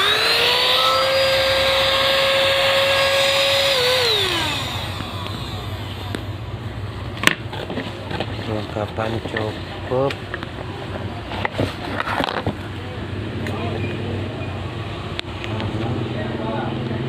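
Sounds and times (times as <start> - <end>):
vacuum cleaner motor whine: 0.0 - 6.5.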